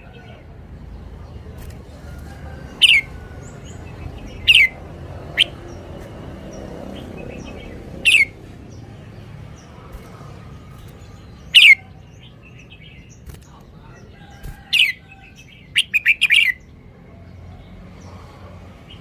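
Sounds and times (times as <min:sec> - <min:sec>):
bulbul calling: 0:02.8 - 0:05.8, 0:07.2 - 0:08.4, 0:10.8 - 0:13.6, 0:15.7 - 0:16.6.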